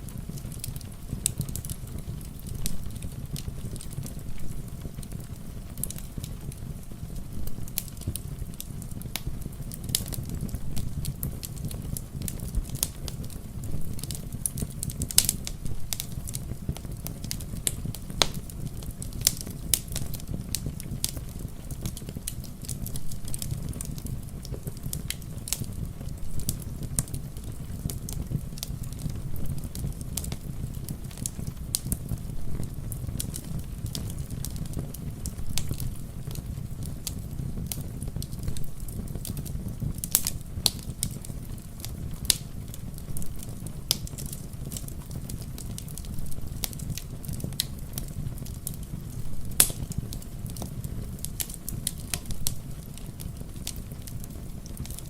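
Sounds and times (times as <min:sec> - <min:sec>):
steady rain hiss: 0:00.0 - 0:55.0
wood fire crackling: 0:00.0 - 0:55.0.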